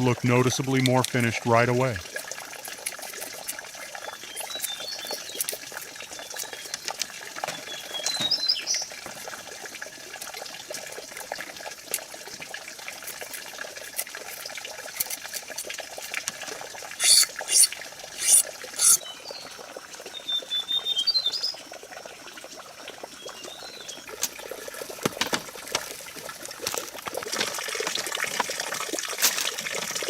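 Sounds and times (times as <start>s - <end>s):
water trickling: 0.0s - 30.0s
high chirps: 17.0s - 19.0s.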